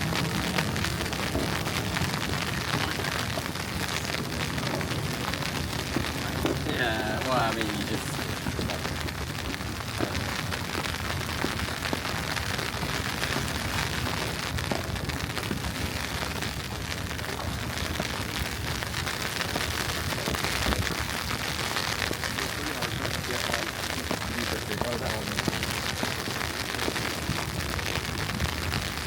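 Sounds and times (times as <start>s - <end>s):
even hiss: 5.0s - 11.8s.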